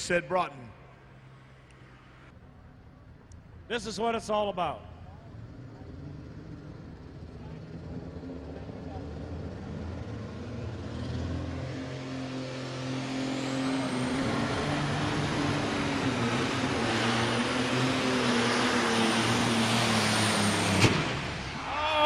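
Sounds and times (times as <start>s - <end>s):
high turbocharger whine: 4.9s - 21.7s
tractor engine at full throttle: 5.0s - 21.6s.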